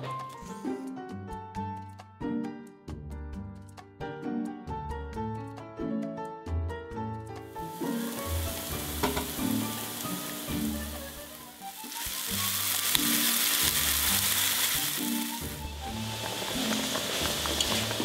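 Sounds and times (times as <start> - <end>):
soft background music: 0.0 - 18.0
onion and garlic sizzling in oil: 7.5 - 18.0
spatula stirring: 11.8 - 18.0.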